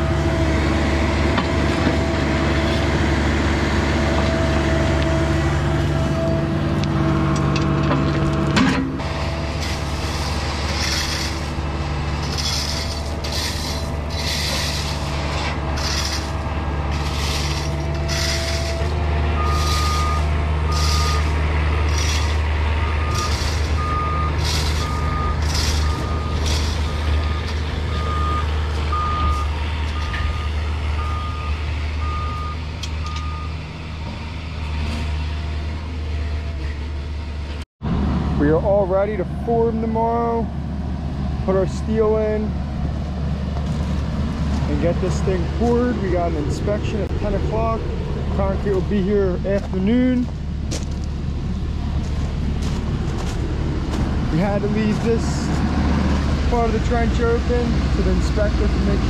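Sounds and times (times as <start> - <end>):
excavator diesel engine running: 0.0 - 59.0
back-up alarm beeping: 19.4 - 21.3, 22.8 - 33.5.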